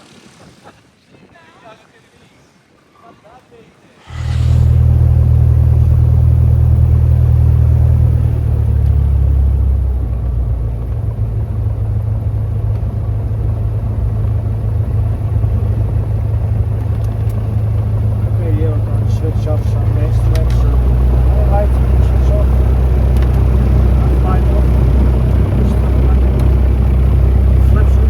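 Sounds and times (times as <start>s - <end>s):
propeller plane engine droning: 4.0s - 28.0s.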